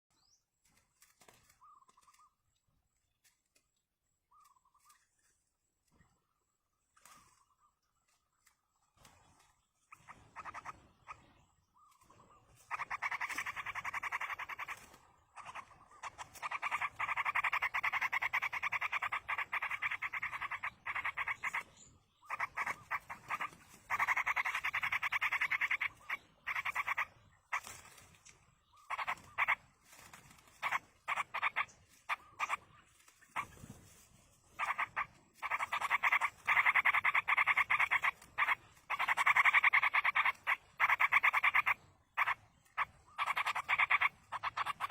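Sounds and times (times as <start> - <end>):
bird nestlings begging calls: 9.8 - 27.9, 28.7 - 29.6, 34.5 - 44.9.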